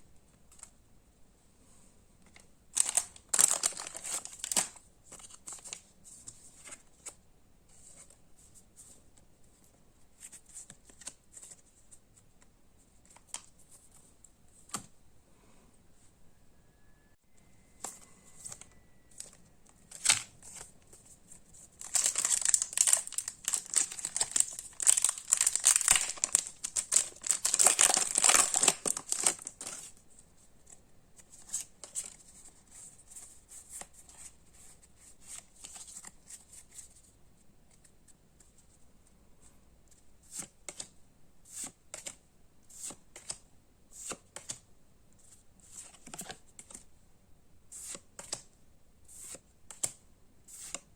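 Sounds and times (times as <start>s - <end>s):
foil wrapper tearing and crinkling: 2.8s - 4.7s, 21.8s - 29.7s.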